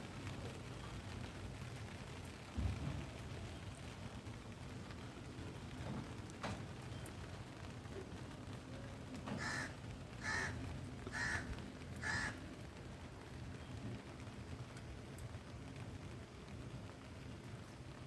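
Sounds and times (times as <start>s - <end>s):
bird calling: 9.4s - 12.4s.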